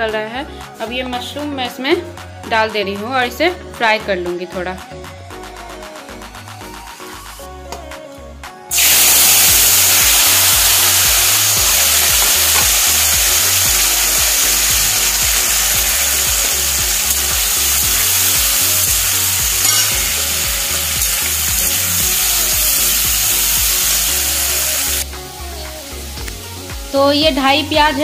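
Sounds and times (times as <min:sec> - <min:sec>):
mushrooms sizzling in hot oil: 0:08.7 - 0:25.1
spatula turning food in pan: 0:16.4 - 0:21.8.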